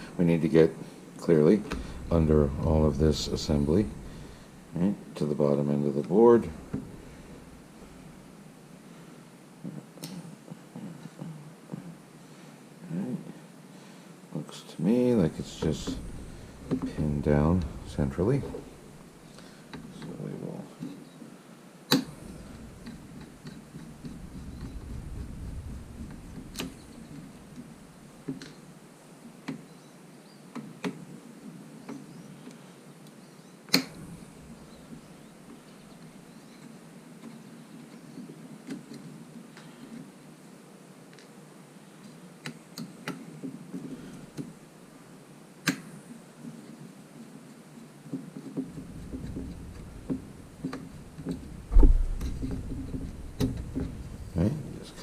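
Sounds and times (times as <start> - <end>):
low thump: 1.7 - 4.4, 48.8 - 55.0.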